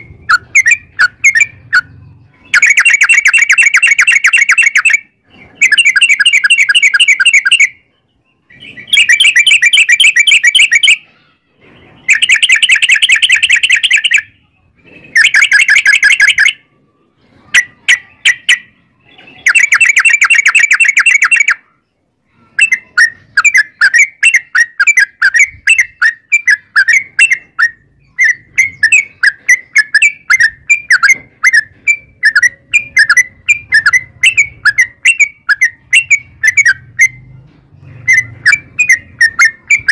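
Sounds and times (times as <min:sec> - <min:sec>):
bird chirps: 0:00.0 - 0:39.9
bird singing rolling trills: 0:00.0 - 0:39.9.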